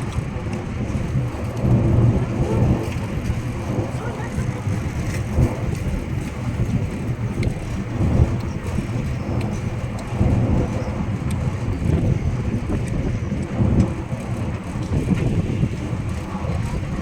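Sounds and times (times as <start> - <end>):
train low rumble: 0.0 - 17.0
wind buffeting microphone: 0.0 - 17.0
faint clicks: 7.3 - 7.6.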